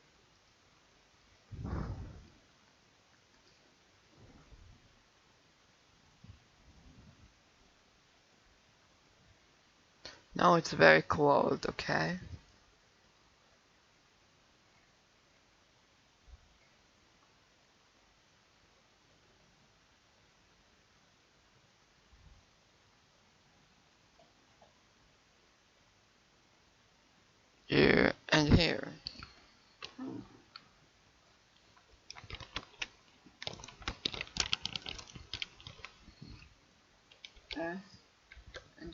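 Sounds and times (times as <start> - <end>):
faint microphone hiss: 0.0 - 38.9
keyboard typing clicks: 32.1 - 36.4, 37.1 - 37.6.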